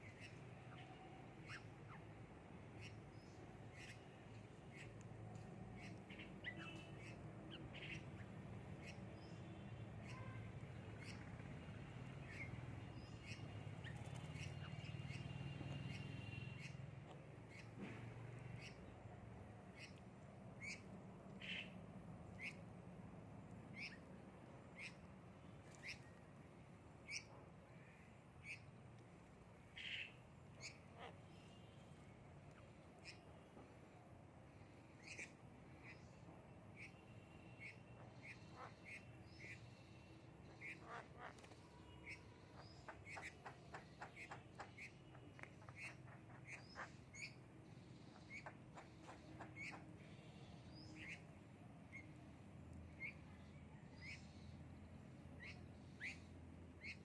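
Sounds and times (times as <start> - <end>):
birds chirping: 0.0 - 17.8, 34.6 - 52.2, 52.8 - 57.0
harsh bird calls: 35.0 - 51.2.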